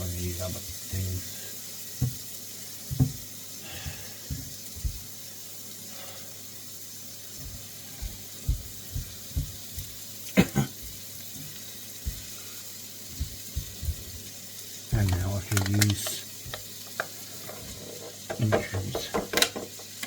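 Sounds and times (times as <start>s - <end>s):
vegetables sizzling in a wok: 0.0s - 20.0s.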